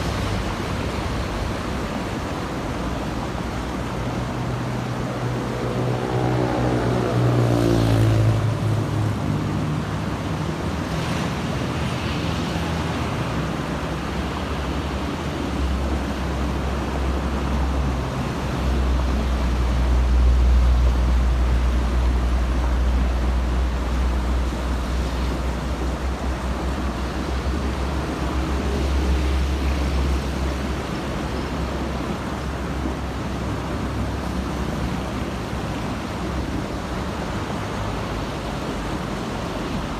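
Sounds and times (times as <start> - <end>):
road traffic: 0.0 - 39.9
passing engine dropping in pitch: 4.4 - 9.9.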